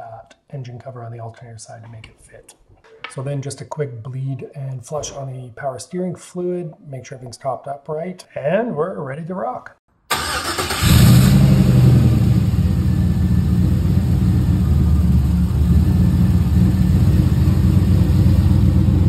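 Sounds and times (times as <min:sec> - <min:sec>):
truck engine starting and idling: 0:10.1 - 0:19.0.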